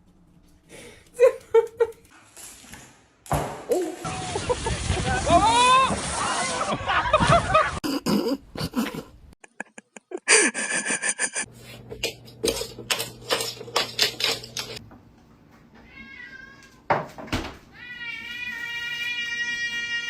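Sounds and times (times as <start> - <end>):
cat meowing: 15.8 - 16.8.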